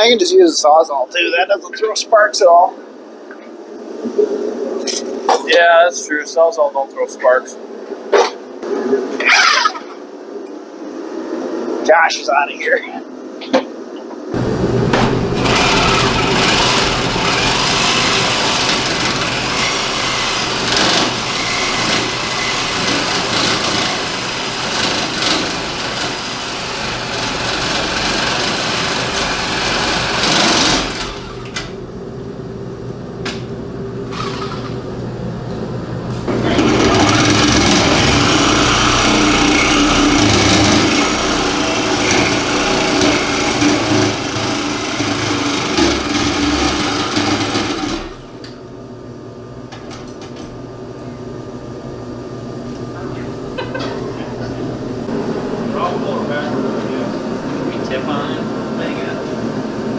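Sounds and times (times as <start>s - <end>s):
reciprocating saw cutting: 14.4s - 31.8s, 34.1s - 34.8s, 36.3s - 48.4s.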